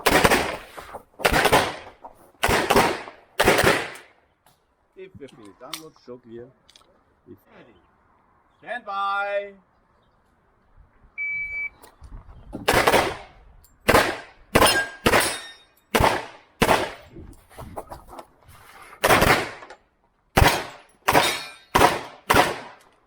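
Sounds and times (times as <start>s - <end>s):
pistol shots: 0.0s - 0.6s, 1.2s - 4.1s, 12.6s - 13.3s, 13.9s - 17.0s, 19.0s - 19.7s, 20.4s - 22.8s
shot timer beep: 11.2s - 11.8s.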